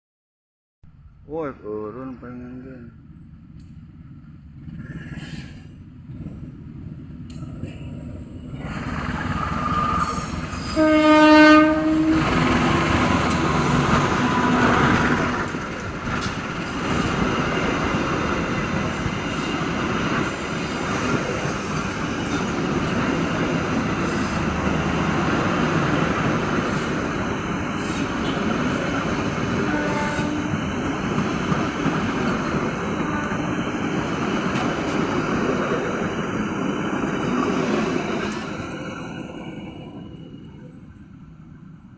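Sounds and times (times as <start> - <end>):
train carriages rumbling and clattering: 1.4 - 41.9
train horn: 10.6 - 15.3, 29.6 - 30.6, 33.0 - 33.6.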